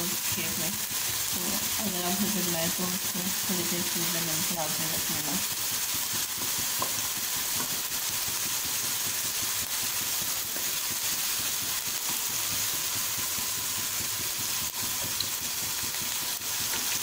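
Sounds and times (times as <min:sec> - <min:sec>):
kababs sizzling in oil: 0:00.0 - 0:17.0
wooden spatula tapping: 0:06.4 - 0:07.0.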